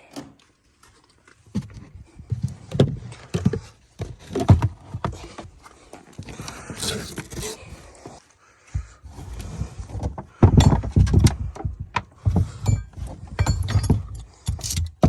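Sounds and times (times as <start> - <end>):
irregular knocks and thumps: 1.5 - 5.6, 8.6 - 15.0.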